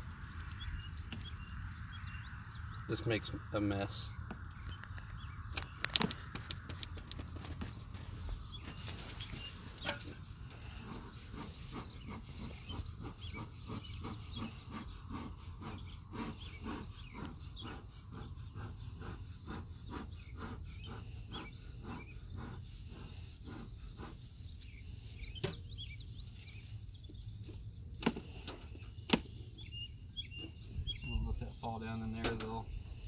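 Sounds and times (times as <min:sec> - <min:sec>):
birds chirping faintly: 0:00.0 - 0:33.0
hive tool scraping wood: 0:05.6 - 0:25.5.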